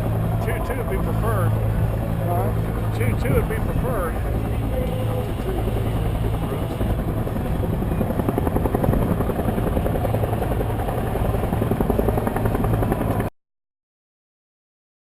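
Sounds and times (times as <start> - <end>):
helicopter rotor and turbine: 0.0 - 13.3.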